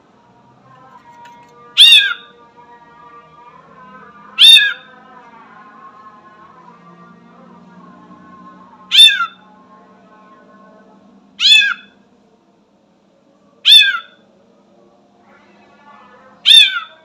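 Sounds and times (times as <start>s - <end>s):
bird meow-like calls: 0.9s - 5.1s, 8.4s - 9.5s, 11.4s - 12.0s, 13.6s - 14.2s, 16.4s - 17.0s.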